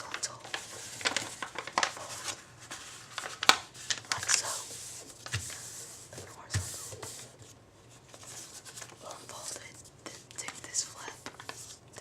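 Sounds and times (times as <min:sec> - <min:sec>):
paper crinkling and folding: 0:00.0 - 0:12.0.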